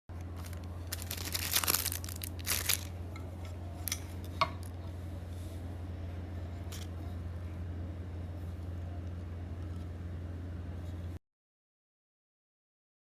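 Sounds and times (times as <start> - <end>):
steady low hum: 0.1 - 11.2
crinkling rustling handling noise: 0.2 - 4.3.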